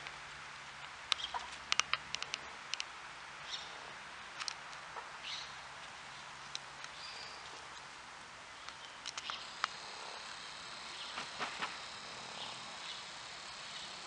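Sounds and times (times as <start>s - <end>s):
sharp high clicks: 8.7s - 13.9s.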